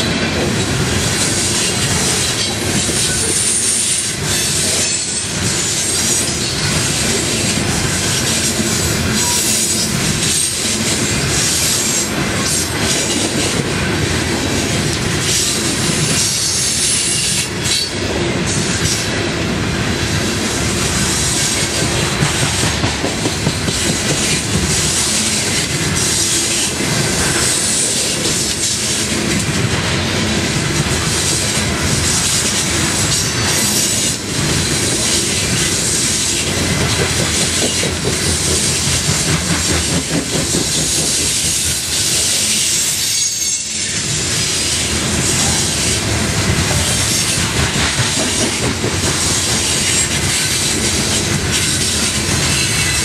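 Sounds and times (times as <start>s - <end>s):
freight train wheels clattering: 0.0s - 53.0s.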